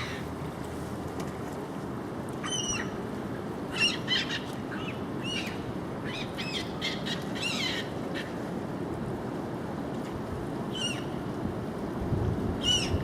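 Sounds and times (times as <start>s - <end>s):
gulls calling: 0.0s - 0.4s, 2.4s - 3.0s.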